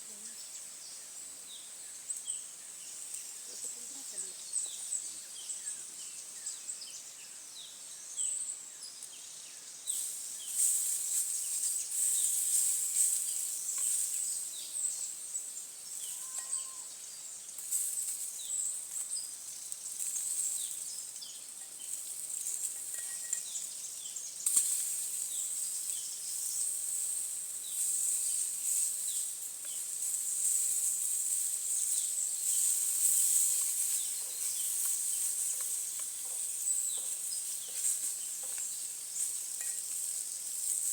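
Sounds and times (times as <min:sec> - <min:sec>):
insects buzzing: 0:09.1 - 0:40.9.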